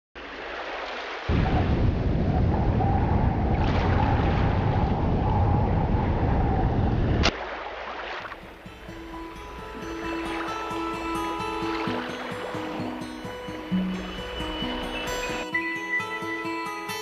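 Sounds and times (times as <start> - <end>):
sea waves: 0.2 - 17.0
wind rushing: 1.3 - 7.3.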